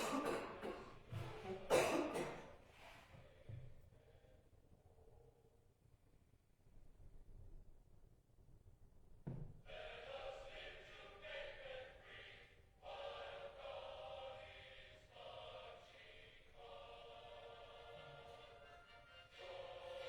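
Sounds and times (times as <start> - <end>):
choir singing with music: 0.0 - 3.0, 9.7 - 20.0.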